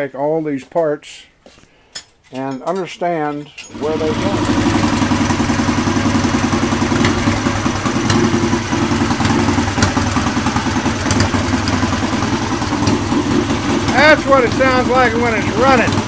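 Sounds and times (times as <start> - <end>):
motorcycle engine idling: 3.7 - 16.0.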